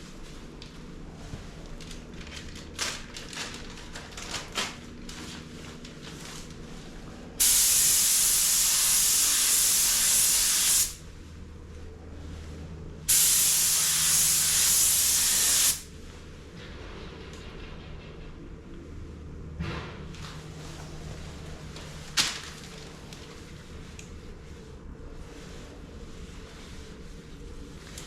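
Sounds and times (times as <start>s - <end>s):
spray gun hissing: 7.4s - 11.0s, 13.1s - 15.9s.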